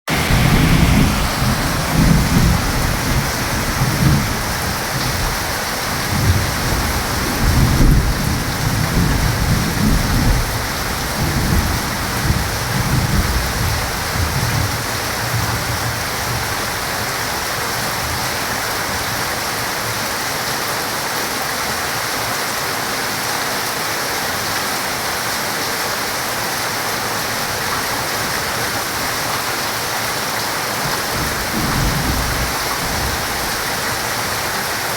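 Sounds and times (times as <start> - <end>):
rolling thunder: 0.1 - 19.1, 30.8 - 34.8
heavy rain falling: 0.1 - 34.9.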